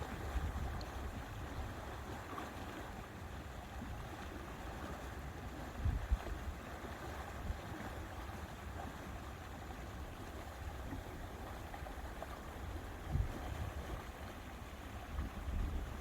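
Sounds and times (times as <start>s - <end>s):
wind rumbling on microphone: 0.0s - 1.9s, 5.7s - 6.5s, 12.2s - 16.0s
lake water lapping: 0.0s - 16.0s.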